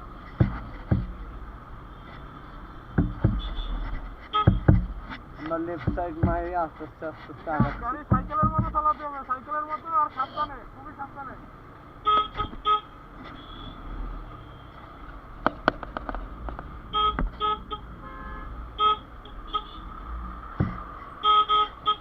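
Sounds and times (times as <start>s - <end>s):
highway traffic rumble: 0.0s - 22.0s
vehicle horns tooting: 1.8s - 4.8s, 12.0s - 14.9s, 16.9s - 20.1s, 21.1s - 22.0s
low thud: 2.9s - 3.6s, 4.5s - 5.0s, 7.6s - 8.8s.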